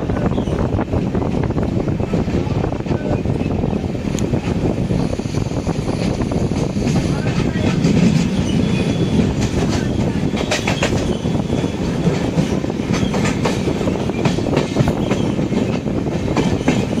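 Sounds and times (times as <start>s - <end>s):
train rumbling on track: 0.0s - 17.0s
wheels clicking over rail joints: 6.5s - 17.0s.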